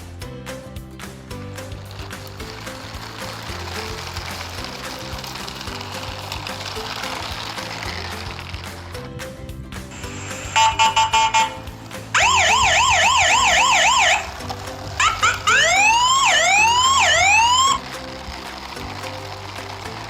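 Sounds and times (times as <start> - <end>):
background music: 0.0 - 20.0
electronic siren: 10.4 - 11.6, 12.2 - 14.4, 15.0 - 17.8.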